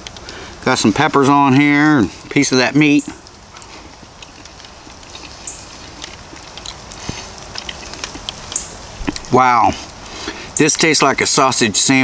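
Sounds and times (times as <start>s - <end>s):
background hiss: 0.0s - 12.0s
man chewing: 3.1s - 10.6s.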